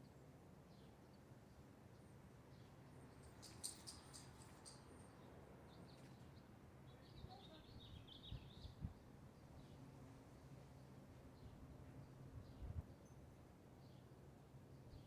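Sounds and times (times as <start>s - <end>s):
wind rumble on microphone: 12.4s - 12.9s.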